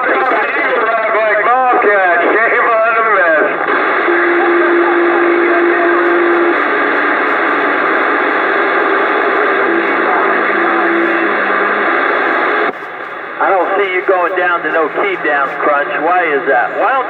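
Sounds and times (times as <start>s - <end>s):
radio static: 0.0s - 17.0s
steady held tone: 3.8s - 16.1s.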